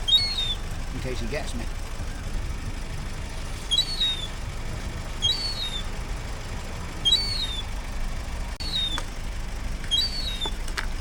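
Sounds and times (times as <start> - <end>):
bird two-part call: 0.0 - 0.7, 3.6 - 4.4, 5.2 - 6.0, 7.0 - 7.7, 8.6 - 9.1, 9.9 - 10.6
steady low rumble: 0.0 - 11.0.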